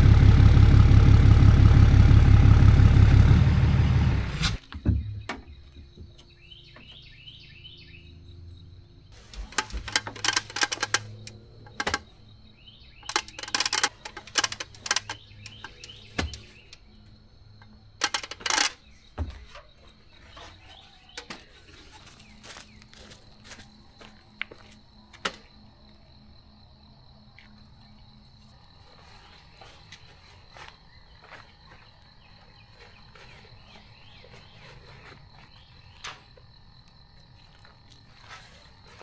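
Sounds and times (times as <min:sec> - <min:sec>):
low steady hum: 0:00.0 - 0:04.6
faint bird chirps: 0:05.0 - 0:08.8
sharp clicks and clatter: 0:09.2 - 0:12.1, 0:13.0 - 0:16.8, 0:18.0 - 0:18.8.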